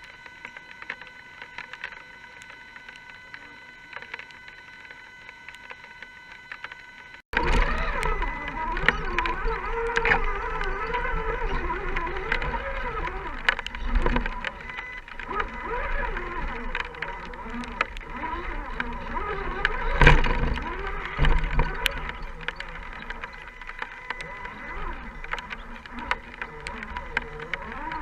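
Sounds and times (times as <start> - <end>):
toy car electric motor whining: 0.0 - 28.0.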